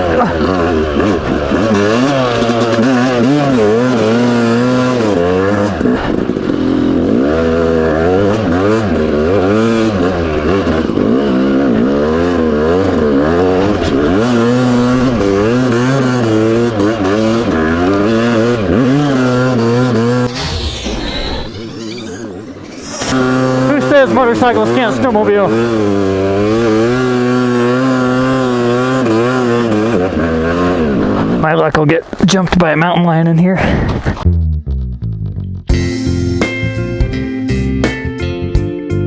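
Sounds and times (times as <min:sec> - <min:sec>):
dirt bike engine revving: 0:00.0 - 0:32.2.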